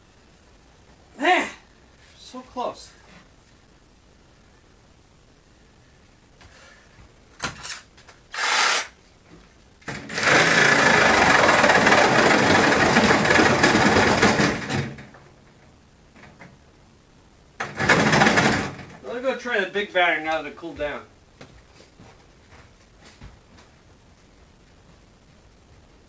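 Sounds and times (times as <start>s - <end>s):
power tool cutting metal: 8.3s - 9.0s.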